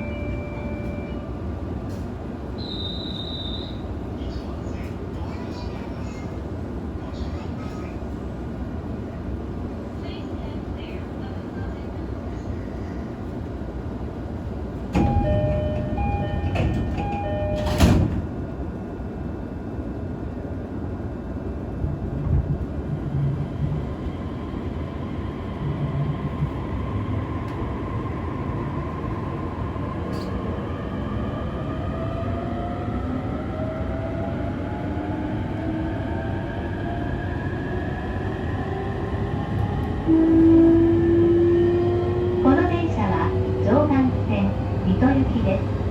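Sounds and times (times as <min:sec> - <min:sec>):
train door chime: 0:00.0 - 0:01.4, 0:14.9 - 0:18.3
train inverter whine: 0:00.0 - 0:07.2, 0:08.2 - 0:45.9
train doors sliding shut: 0:14.7 - 0:18.5.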